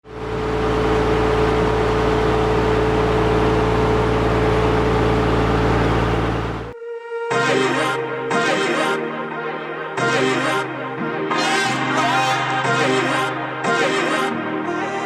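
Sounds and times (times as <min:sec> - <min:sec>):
boat engine humming: 0:00.0 - 0:06.8.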